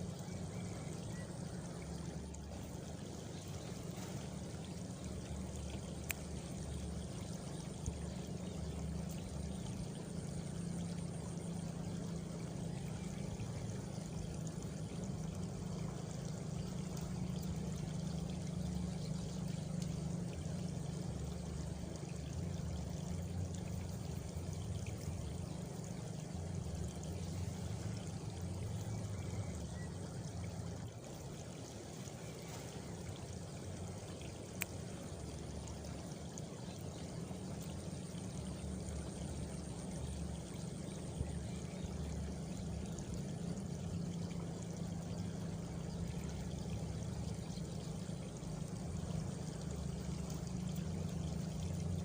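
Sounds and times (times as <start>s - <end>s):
crickets chirping: 0.0s - 52.0s
frogs croaking: 0.0s - 52.0s.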